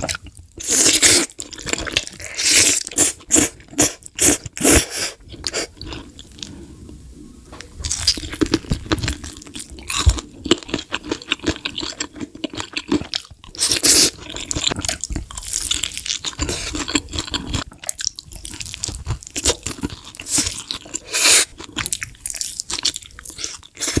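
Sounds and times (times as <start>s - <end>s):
wet chewing: 7.6s - 24.0s.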